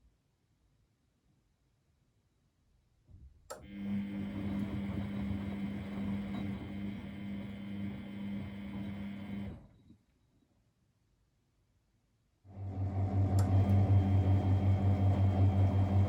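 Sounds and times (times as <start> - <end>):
washing machine hum: 3.5 - 9.8, 12.5 - 16.0.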